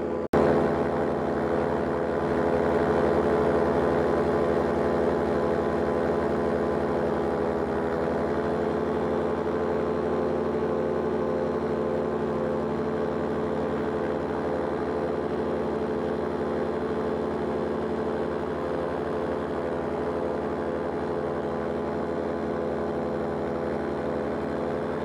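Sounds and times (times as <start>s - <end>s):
paraglider engine droning: 0.0s - 25.0s.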